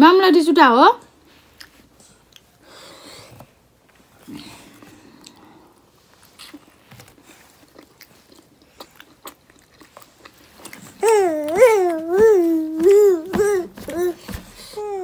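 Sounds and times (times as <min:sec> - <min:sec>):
person chewing food: 0:01.4 - 0:02.7, 0:04.7 - 0:14.8
child whining: 0:11.0 - 0:15.0.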